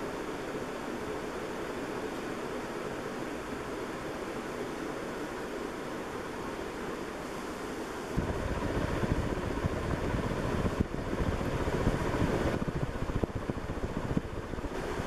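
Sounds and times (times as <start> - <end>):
ceiling fan rushing air: 0.0 - 15.0
air buffeting microphone: 7.8 - 15.0.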